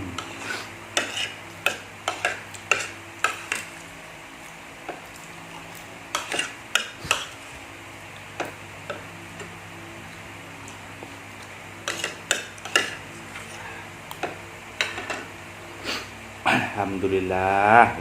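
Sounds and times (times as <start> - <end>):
spoon scraping a bowl: 0.2 - 3.8, 6.1 - 7.5, 11.8 - 13.7.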